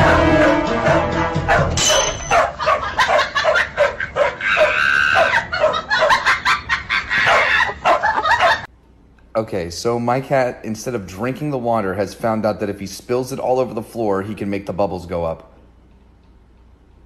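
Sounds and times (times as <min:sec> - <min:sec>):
background music: 0:00.0 - 0:02.6
dog barking: 0:01.5 - 0:06.3, 0:07.2 - 0:08.7.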